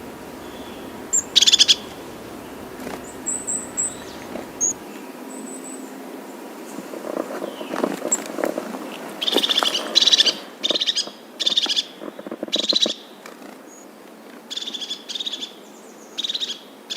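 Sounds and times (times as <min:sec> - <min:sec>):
low rustling: 0:00.0 - 0:04.8
small bird trilled chirps: 0:00.4 - 0:04.8.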